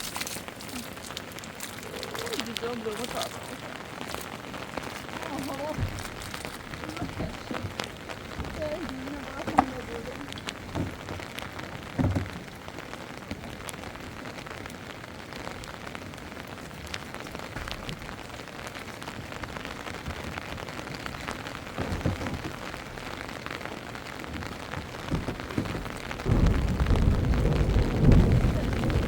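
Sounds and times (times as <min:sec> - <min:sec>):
heavy rain falling: 0:00.0 - 0:29.0
raindrop clicks: 0:00.0 - 0:29.0
dull low thumps: 0:04.4 - 0:12.5, 0:24.3 - 0:29.0.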